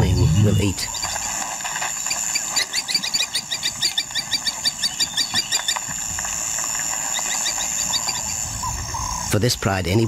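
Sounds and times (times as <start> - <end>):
high insect drone: 0.0 - 10.0.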